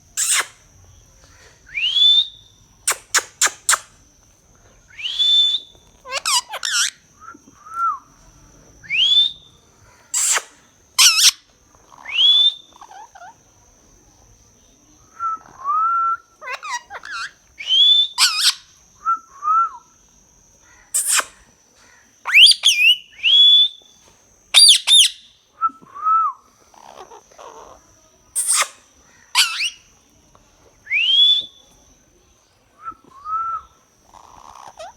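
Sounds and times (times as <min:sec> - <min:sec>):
parrot harsh calls: 0:00.2 - 0:00.6, 0:04.9 - 0:07.1, 0:10.1 - 0:13.4, 0:16.4 - 0:18.7, 0:24.6 - 0:25.3, 0:28.4 - 0:29.8, 0:34.1 - 0:34.9
parrot low chirps: 0:00.2 - 0:00.7, 0:01.6 - 0:04.0, 0:04.9 - 0:08.1, 0:10.1 - 0:13.4, 0:16.3 - 0:18.7, 0:22.3 - 0:23.8, 0:24.6 - 0:25.3, 0:26.7 - 0:29.9, 0:33.2 - 0:34.9
parrot whistling: 0:04.9 - 0:08.0, 0:10.2 - 0:11.4, 0:15.2 - 0:19.8, 0:22.3 - 0:23.8, 0:24.6 - 0:25.3, 0:29.4 - 0:29.8, 0:30.9 - 0:31.7.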